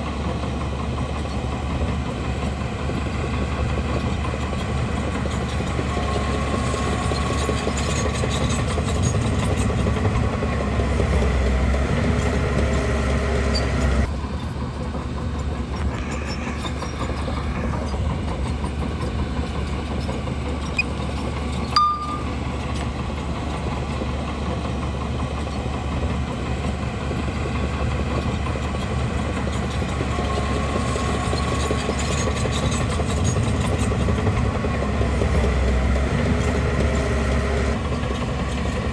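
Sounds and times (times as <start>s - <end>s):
bulldozer diesel engine running: 0.0s - 38.9s
steel tracks clattering: 13.8s - 23.5s.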